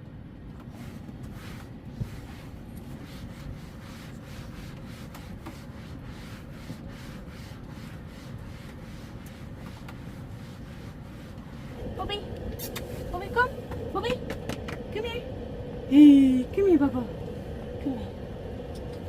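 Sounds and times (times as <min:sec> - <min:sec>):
steady low rumble: 0:06.1 - 0:19.0.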